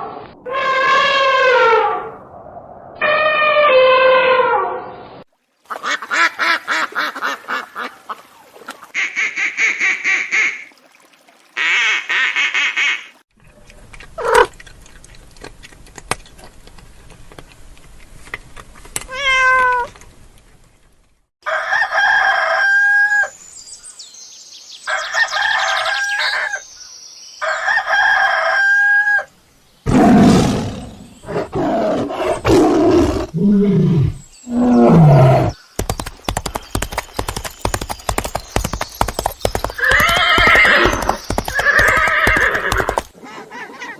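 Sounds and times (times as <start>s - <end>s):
rooster crowing: 21.4s - 23.3s, 27.4s - 29.3s.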